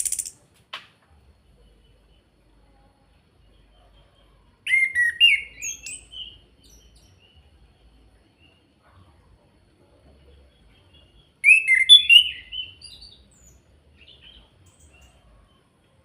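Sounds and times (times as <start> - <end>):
bird singing whistled notes: 0.0 - 0.4, 3.6 - 7.6, 10.6 - 15.3.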